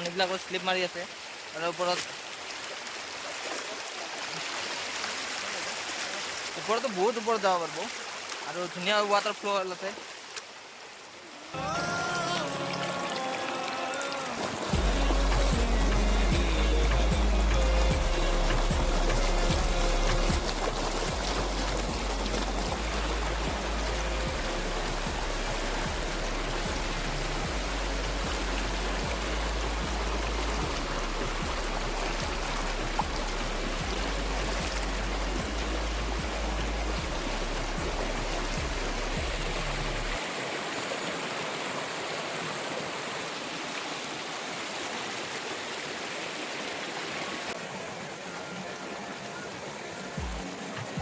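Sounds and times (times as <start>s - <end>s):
waterfall rushing water: 0.0s - 51.0s.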